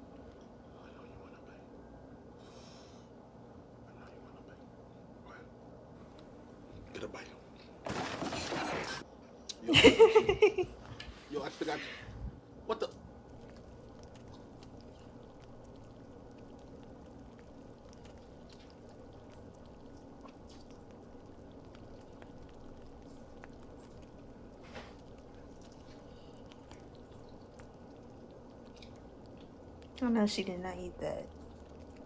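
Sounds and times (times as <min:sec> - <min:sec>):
person eating: 0:13.2 - 0:30.0, 0:31.3 - 0:32.0.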